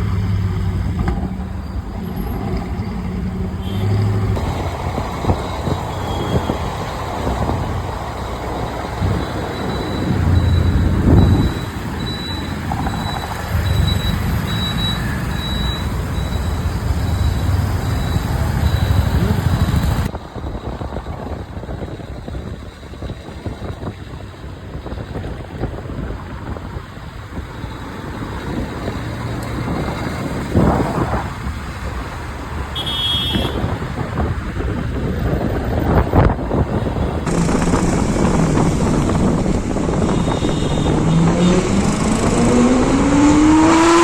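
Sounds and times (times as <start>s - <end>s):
street traffic: 0.0s - 44.0s
car horn toot: 3.6s - 4.2s, 32.7s - 33.8s, 36.8s - 42.6s
vehicle passing: 36.7s - 44.0s
supercar engine running: 37.2s - 43.0s.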